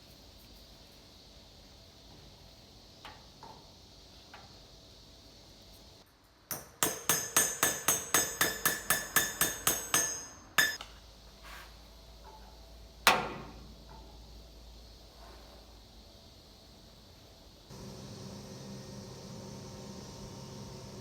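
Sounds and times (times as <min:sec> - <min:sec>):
hammer striking metal: 0:06.5 - 0:10.8.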